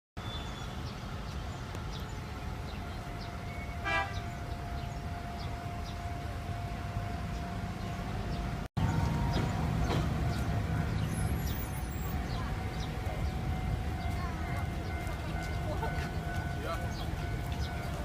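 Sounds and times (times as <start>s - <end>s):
brief horn toot: 3.2s - 5.0s.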